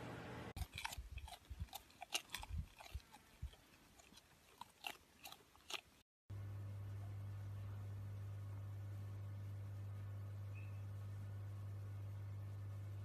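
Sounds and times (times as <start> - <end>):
pet chewing something hard: 0.6 - 6.1
steady low hum: 6.3 - 13.0.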